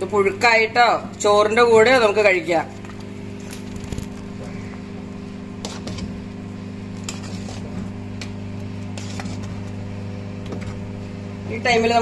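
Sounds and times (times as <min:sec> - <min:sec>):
steady low hum: 0:00.0 - 0:12.0
metal spoon scraping a pot: 0:05.6 - 0:06.2, 0:07.0 - 0:09.7.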